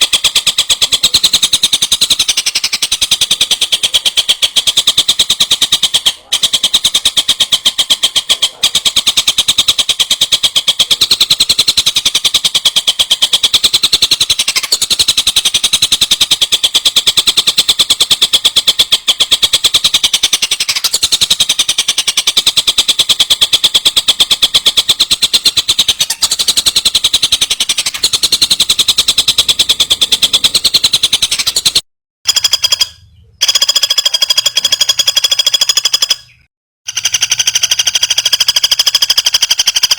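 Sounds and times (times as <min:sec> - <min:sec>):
songbird chattering trill: 0:00.0 - 0:31.8
bird high-pitched call: 0:00.0 - 0:39.9.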